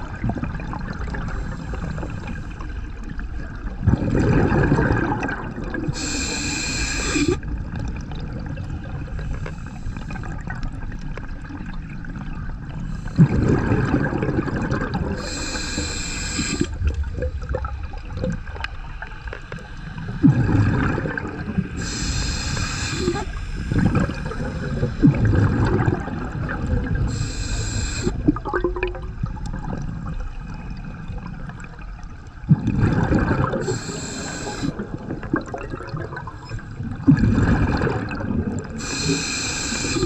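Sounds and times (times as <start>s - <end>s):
bubbles burbling underwater: 0.0s - 40.0s
regulator inhale hiss: 1.3s - 2.8s, 5.9s - 7.4s, 9.3s - 10.4s, 15.1s - 16.8s, 21.7s - 25.4s, 27.0s - 28.2s, 33.6s - 34.8s, 38.8s - 40.0s.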